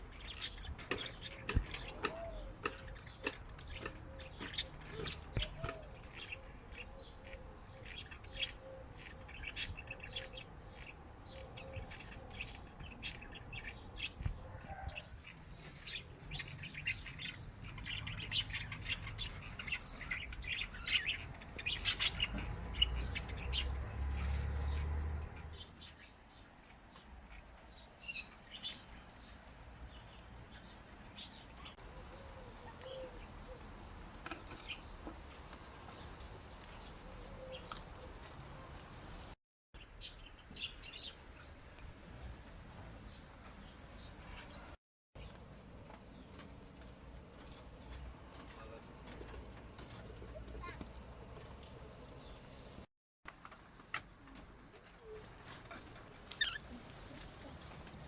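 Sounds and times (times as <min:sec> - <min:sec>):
parrots chirping and squawking: 0:00.1 - 0:25.6, 0:55.7 - 0:56.7.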